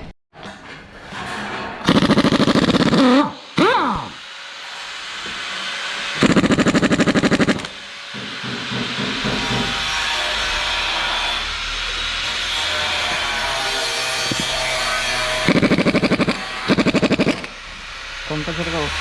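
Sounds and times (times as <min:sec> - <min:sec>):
pneumatic tool rattling: 0:01.8 - 0:04.2, 0:05.2 - 0:07.9, 0:14.3 - 0:17.6
compressed air hissing: 0:01.8 - 0:04.3, 0:05.1 - 0:07.9, 0:12.8 - 0:18.4.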